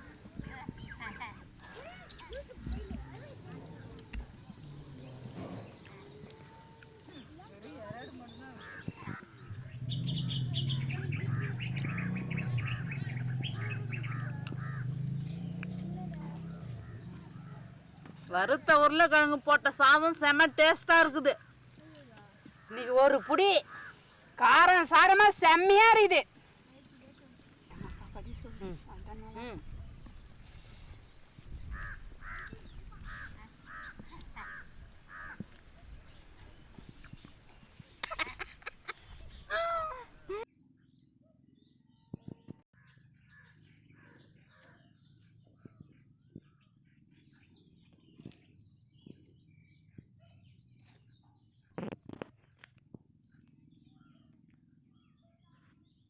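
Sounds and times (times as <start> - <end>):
small birds chirping: 0.0 - 40.8
steady low hum: 9.4 - 15.4
crow cawing: 10.7 - 15.0, 22.7 - 24.3, 31.7 - 35.6.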